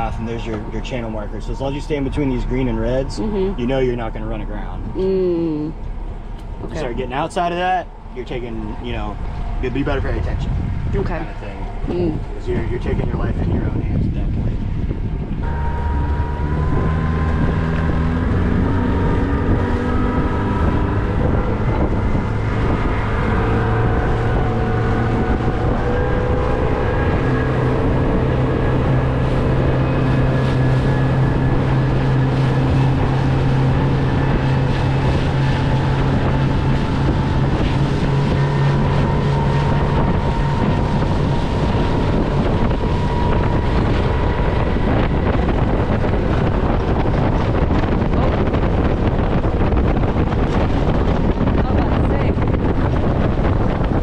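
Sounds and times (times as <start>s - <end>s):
outboard motor running: 0.0s - 54.0s
wind buffeting microphone: 0.0s - 54.0s.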